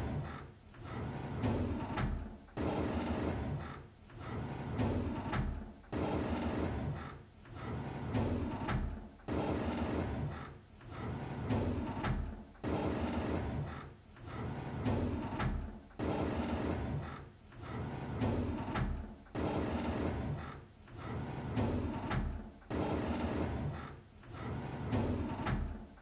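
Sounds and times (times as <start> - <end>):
drawer sliding open: 14.3 - 25.9.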